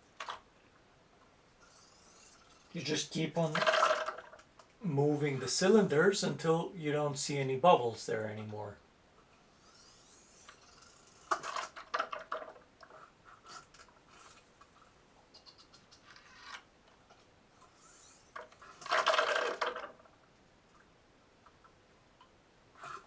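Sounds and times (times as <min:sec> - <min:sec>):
mechanism clicks and clatters: 0:00.0 - 0:00.5, 0:03.4 - 0:04.8, 0:09.6 - 0:23.0.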